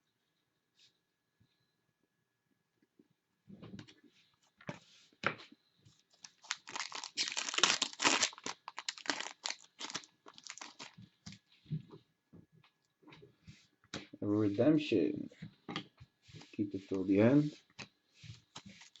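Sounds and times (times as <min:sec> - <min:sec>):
wrapper being torn and crinkled: 0:06.2 - 0:11.0, 0:18.8 - 0:19.0.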